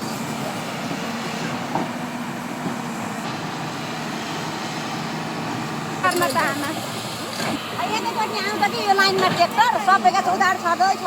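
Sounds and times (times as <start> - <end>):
excavator engine humming: 0.0 - 11.0.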